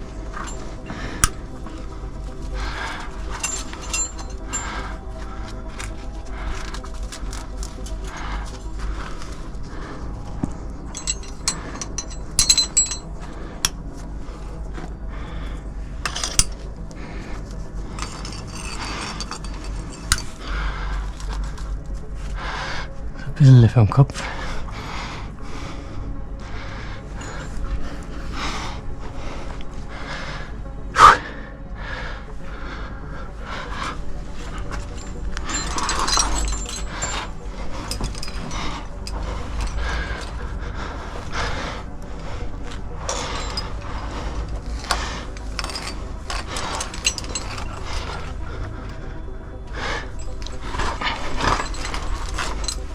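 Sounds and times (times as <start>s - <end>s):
metal climbing gear clinking: 0.0s - 22.0s, 26.3s - 31.1s, 32.4s - 52.9s
rubbing and scraping: 10.9s - 13.8s, 17.8s - 20.5s, 42.9s - 48.4s
scraping and rustling against rock: 17.4s - 20.4s, 34.3s - 40.3s, 43.0s - 48.4s, 50.2s - 52.9s.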